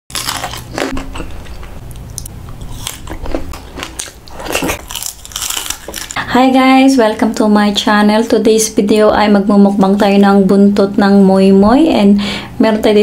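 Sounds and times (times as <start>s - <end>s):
crunchy fried food chewing: 0.1s - 6.3s.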